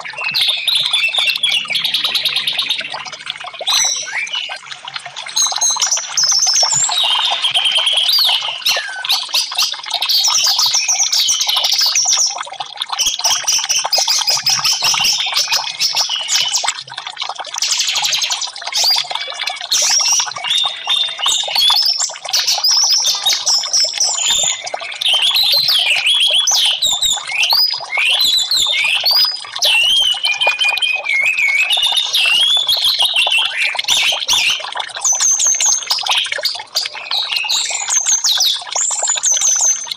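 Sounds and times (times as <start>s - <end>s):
thrush singing whistles and trills: 0.0s - 12.4s, 13.0s - 16.7s, 17.6s - 39.9s
trickling water: 0.0s - 39.9s.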